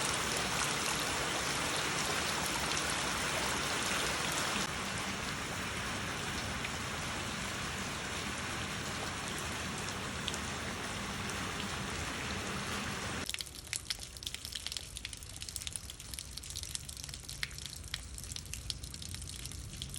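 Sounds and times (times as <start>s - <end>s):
rain falling: 0.0s - 19.9s
patter of drips: 7.4s - 12.3s, 13.2s - 19.9s.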